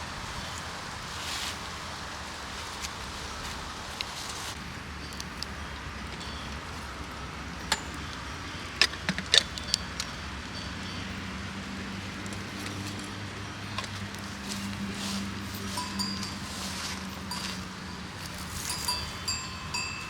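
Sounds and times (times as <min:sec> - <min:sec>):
sharp clicks and clinks: 0:05.0 - 0:11.2.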